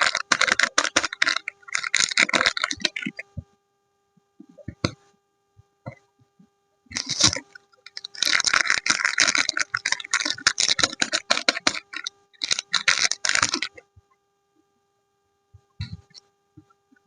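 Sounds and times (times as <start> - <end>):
packaging crinkling: 0.0 - 3.2, 6.9 - 13.8.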